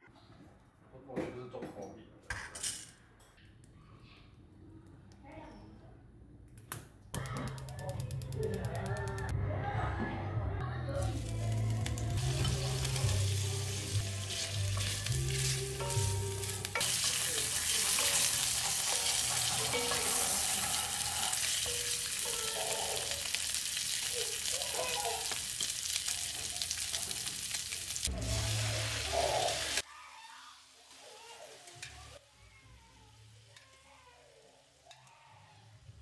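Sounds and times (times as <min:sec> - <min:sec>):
utensil stirring in a pan: 0:11.0 - 0:32.2
bacon sizzling in a pan: 0:11.0 - 0:32.4.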